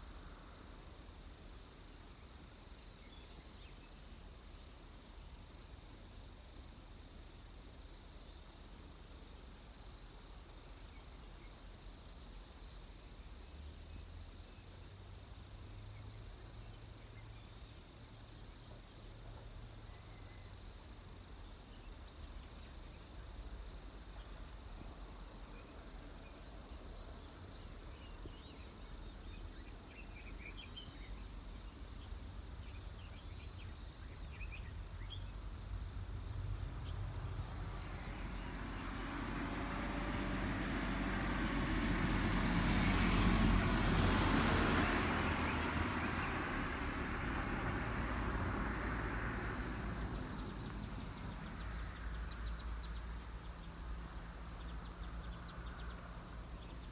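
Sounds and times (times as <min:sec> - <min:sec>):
vehicle passing by: 0:34.7 - 0:56.9.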